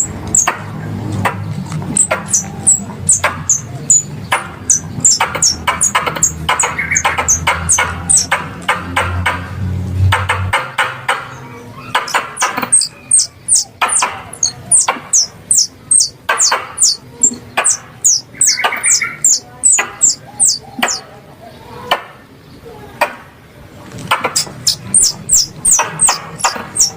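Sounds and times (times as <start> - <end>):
squirrel call chirps: 0.0 - 0.6, 1.9 - 8.4, 11.8 - 21.1, 24.2 - 26.9.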